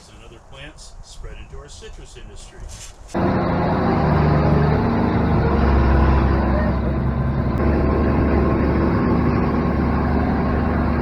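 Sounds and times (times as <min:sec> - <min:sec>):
truck engine droning: 0:03.2 - 0:11.0.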